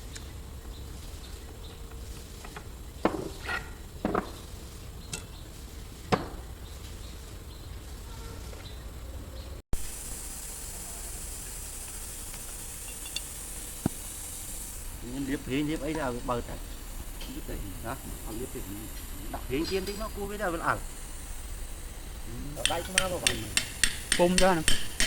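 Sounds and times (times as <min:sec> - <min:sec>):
steady background hiss: 0:00.0 - 0:25.0.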